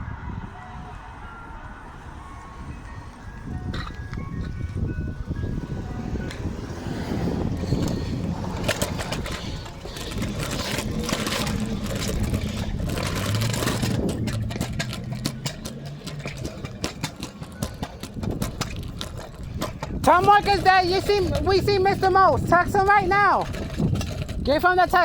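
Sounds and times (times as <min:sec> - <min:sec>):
truck engine running: 0:00.0 - 0:25.0
sharp clicks and crackles: 0:06.2 - 0:25.0.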